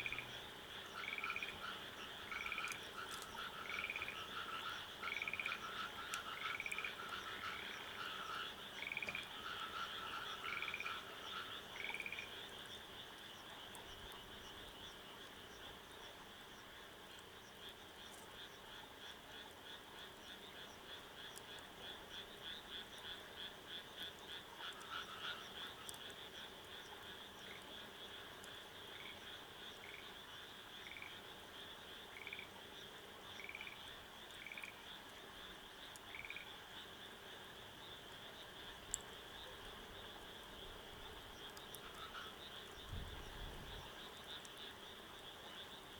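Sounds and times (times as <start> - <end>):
short repeated frog calls: 0.0 - 13.1, 17.6 - 32.6, 33.2 - 45.9
frogs trilling: 0.0 - 45.9.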